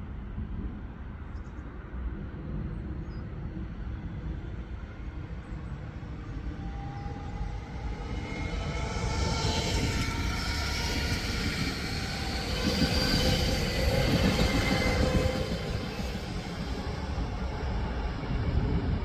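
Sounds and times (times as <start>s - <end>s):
train rumbling: 1.8s - 19.0s
steady high-pitched tones: 5.9s - 19.0s
hissing brake screech: 7.5s - 16.9s.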